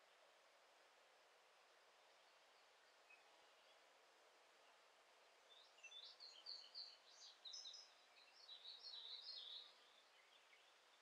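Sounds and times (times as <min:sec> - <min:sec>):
soft outdoor hiss: 0:00.0 - 0:11.0
songbird singing: 0:04.6 - 0:11.0.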